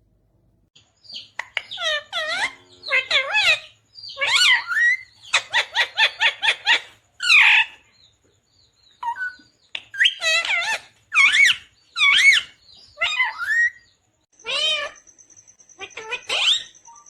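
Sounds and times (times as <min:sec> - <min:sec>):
parakeet chirping and squawking: 0:01.1 - 0:07.8, 0:09.0 - 0:13.8, 0:14.4 - 0:15.1, 0:15.7 - 0:17.0.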